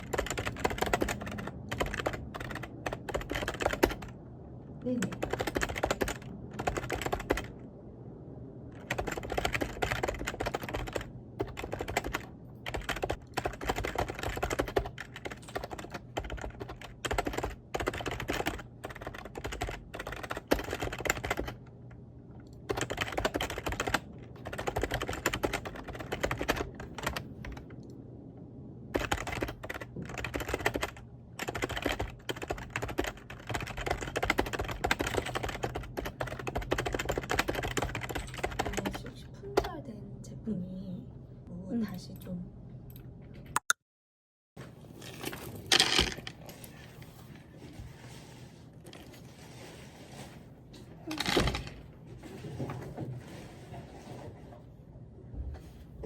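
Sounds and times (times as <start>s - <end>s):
computer keyboard typing: 0.0s - 4.2s, 4.8s - 7.6s, 8.7s - 21.7s, 22.4s - 27.9s, 28.9s - 39.0s
low steady hum: 0.0s - 43.6s.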